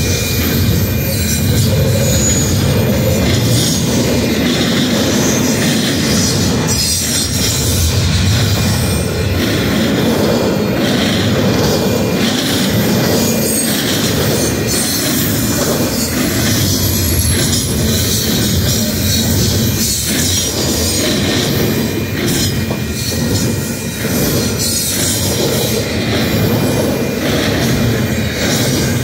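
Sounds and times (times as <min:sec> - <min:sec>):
train wheels rumbling on rail: 0:00.0 - 0:29.0
thin wheel squeal: 0:00.1 - 0:03.9.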